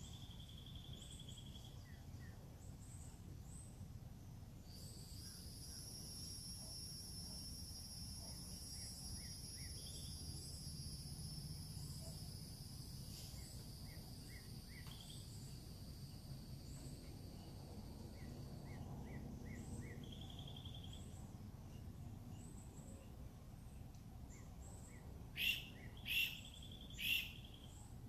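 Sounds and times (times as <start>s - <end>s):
small birds chirping: 0.0s - 28.0s
high insect drone: 4.6s - 21.1s.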